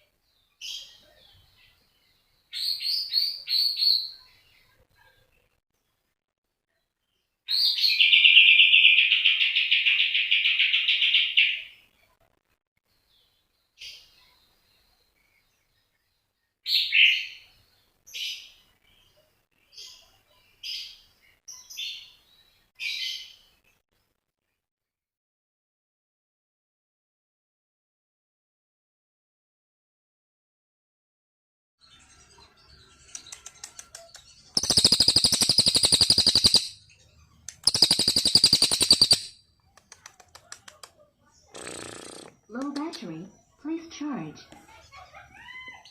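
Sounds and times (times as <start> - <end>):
bird chirping: 0.0 - 6.1, 6.7 - 12.1, 31.8 - 45.9
songbird trilling: 33.1 - 36.8, 37.4 - 39.3.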